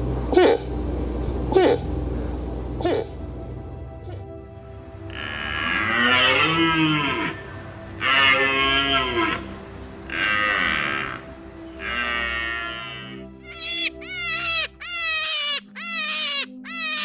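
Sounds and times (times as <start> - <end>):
faint background music: 0.0 - 17.0
cow mooing: 5.0 - 13.3.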